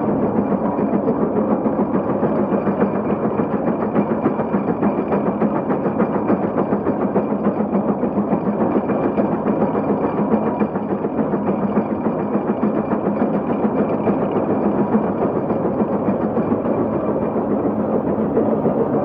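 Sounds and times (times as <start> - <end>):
steam locomotive running: 0.0 - 19.0.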